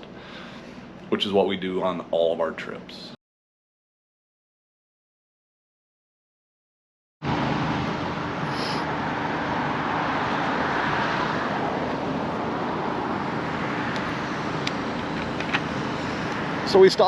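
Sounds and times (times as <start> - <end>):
traffic noise: 7.2 - 17.0
vehicle engine hum: 7.2 - 17.0.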